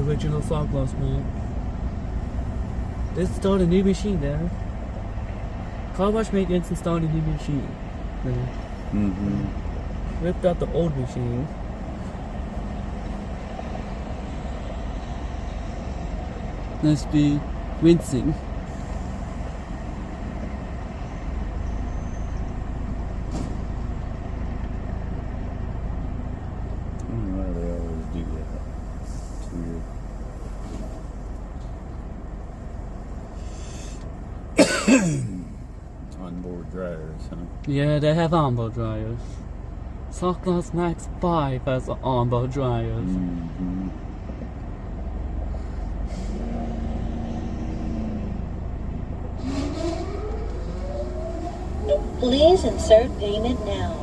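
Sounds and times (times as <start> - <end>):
vehicle idling: 0.0 - 54.0
car wash rumble and hiss: 33.0 - 35.2
short hisses: 33.3 - 34.1, 45.5 - 46.5.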